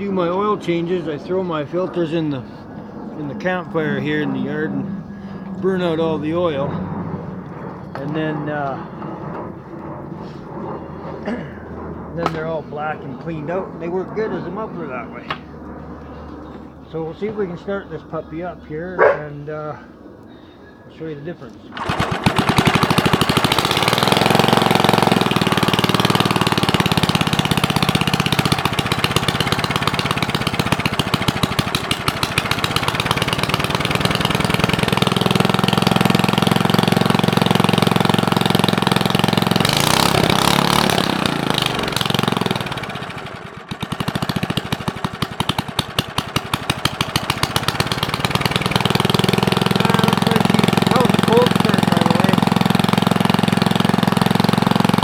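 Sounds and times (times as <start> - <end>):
small engine running without muffler: 21.7 - 55.0.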